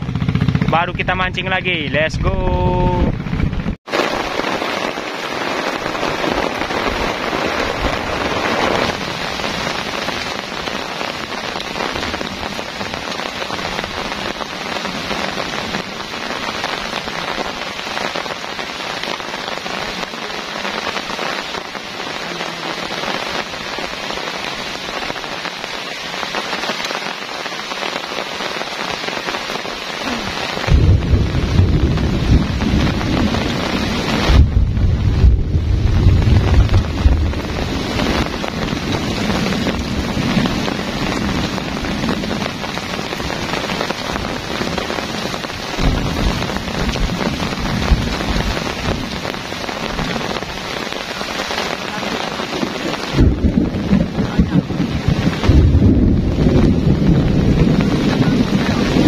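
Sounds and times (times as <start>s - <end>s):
heavy rain on a tarp: 0.0s - 59.0s
wind buffeting microphone: 1.9s - 3.8s, 30.7s - 42.8s, 53.0s - 59.0s.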